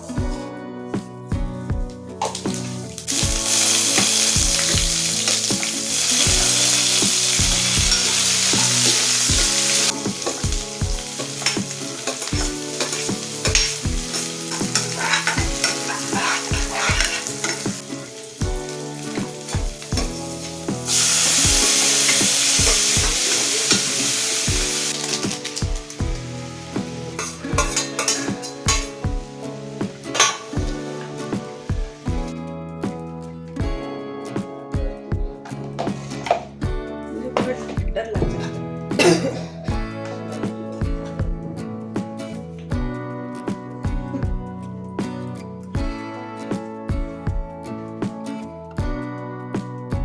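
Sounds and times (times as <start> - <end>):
soft background music with beat: 0.0 - 50.0
spoon stirring and scraping pan: 2.2 - 31.7, 35.6 - 36.6
vegetables sizzling in hot oil: 2.3 - 32.2.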